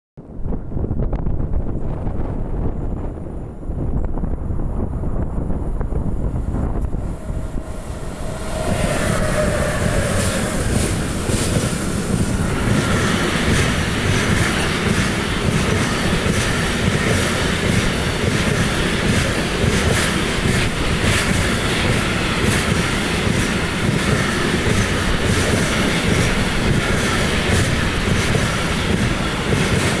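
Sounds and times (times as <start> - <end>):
locomotives whining past: 5.9 - 30.0
faint wheel squeal: 7.6 - 11.1
freight wagon wheels clickety-clack: 10.7 - 30.0.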